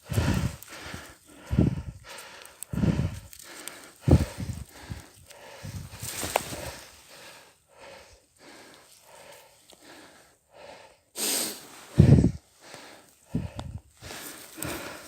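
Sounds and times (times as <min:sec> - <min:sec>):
person breathing hard: 0:00.0 - 0:15.0
wind buffeting microphone: 0:00.1 - 0:00.6, 0:01.4 - 0:02.1, 0:02.7 - 0:03.3, 0:04.0 - 0:06.8, 0:12.0 - 0:12.4, 0:13.3 - 0:13.9.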